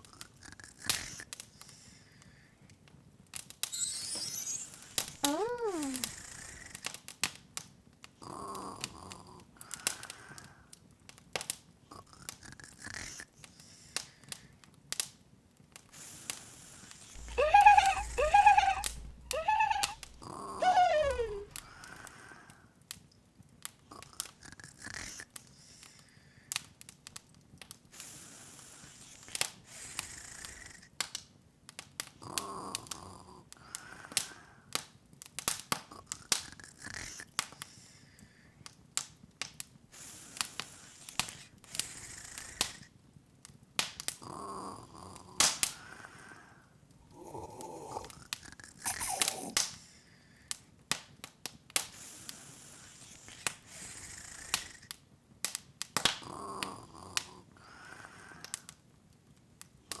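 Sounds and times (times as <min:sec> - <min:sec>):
squeaky cartoon voice: 0:03.7 - 0:06.1, 0:17.2 - 0:21.7
soft muffled sounds: 0:17.2 - 0:21.8
open fire crackling: 0:50.4 - 1:00.0.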